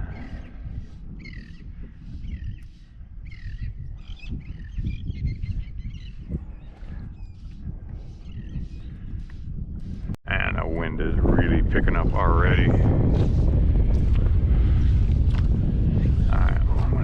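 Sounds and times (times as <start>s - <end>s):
birds calling harshly: 0.0s - 9.4s
steady low rumble: 0.0s - 17.0s.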